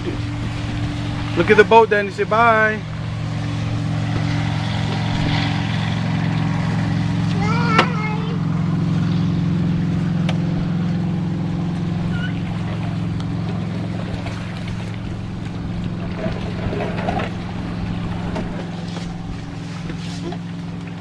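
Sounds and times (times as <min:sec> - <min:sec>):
motorboat engine droning: 0:00.0 - 0:21.0.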